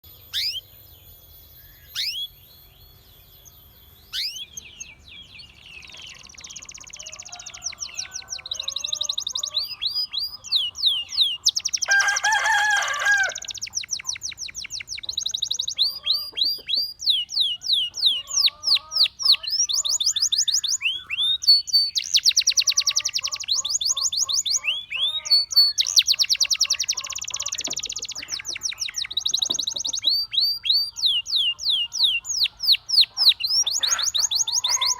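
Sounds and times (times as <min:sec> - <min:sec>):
canary singing trills: 0:00.0 - 0:34.9.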